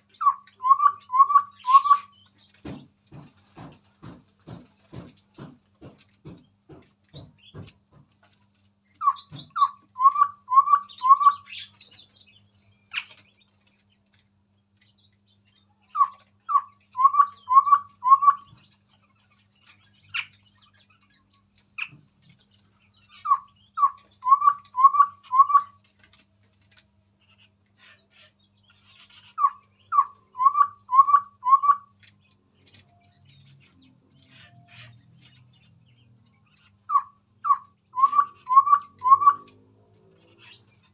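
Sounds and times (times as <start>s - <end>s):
babbler singing low hooting notes: 0.0s - 2.3s, 9.0s - 13.1s, 15.4s - 25.8s, 27.4s - 32.2s, 32.9s - 40.9s
higher chirping: 0.1s - 2.2s, 15.9s - 18.6s, 36.8s - 39.6s.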